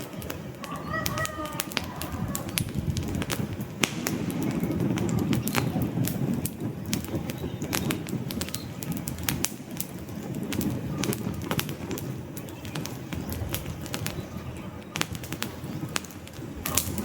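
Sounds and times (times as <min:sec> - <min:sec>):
campfire crackling and popping: 0:00.0 - 0:17.0
rumble of burning flames: 0:00.0 - 0:17.0.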